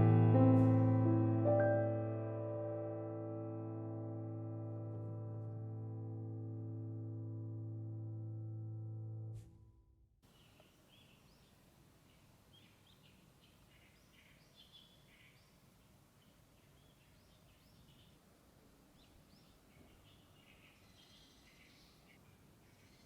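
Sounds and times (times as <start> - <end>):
birds chirping: 10.2 - 23.0
outdoor background noise: 10.2 - 23.0.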